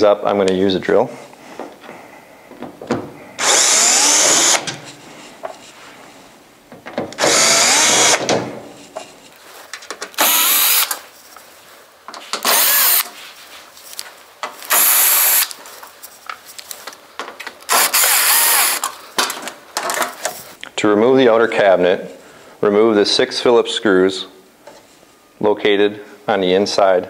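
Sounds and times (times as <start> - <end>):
cordless drill whirring: 3.4 - 4.8, 7.2 - 8.2, 10.2 - 11.0, 12.4 - 13.1, 14.7 - 15.5, 17.7 - 18.9
light clicks and handling noise: 15.5 - 17.7.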